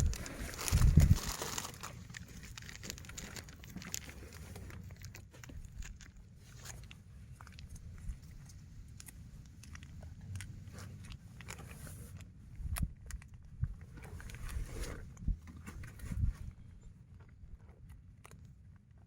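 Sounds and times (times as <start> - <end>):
wind buffeting microphone: 0.0 - 1.6, 12.5 - 16.8.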